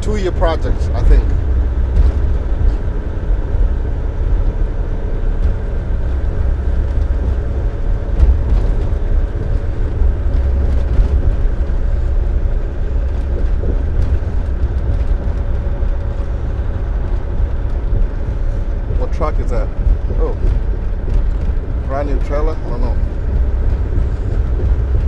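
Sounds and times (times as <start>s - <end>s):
road noise: 0.0s - 25.0s
truck engine drone: 0.0s - 25.0s.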